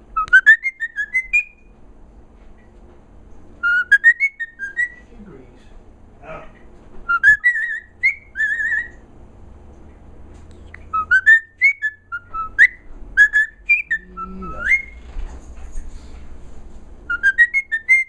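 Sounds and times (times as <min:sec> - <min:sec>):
bird whistling: 0:00.1 - 0:01.7, 0:03.6 - 0:05.1, 0:07.0 - 0:09.0, 0:10.6 - 0:15.1, 0:17.1 - 0:18.0.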